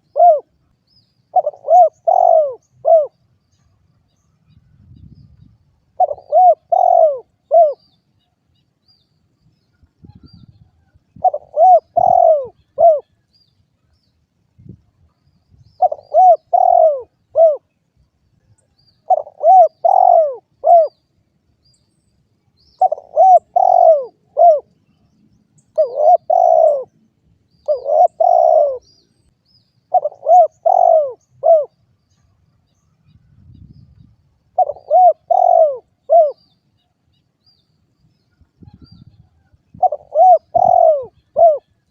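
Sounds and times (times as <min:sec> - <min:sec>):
dove cooing: 0:00.0 - 0:00.5, 0:01.3 - 0:03.2, 0:06.0 - 0:07.8, 0:11.2 - 0:13.1, 0:15.8 - 0:17.7, 0:19.1 - 0:21.0, 0:22.8 - 0:24.7, 0:25.7 - 0:27.0, 0:27.6 - 0:28.9, 0:29.9 - 0:31.8, 0:34.5 - 0:36.4, 0:38.6 - 0:41.8.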